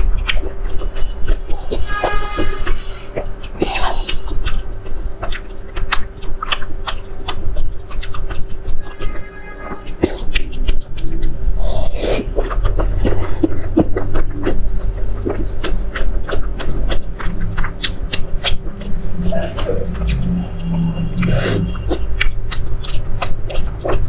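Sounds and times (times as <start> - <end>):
mouth clicks: 0.0 - 24.0
wet chewing and smacking: 0.0 - 24.0.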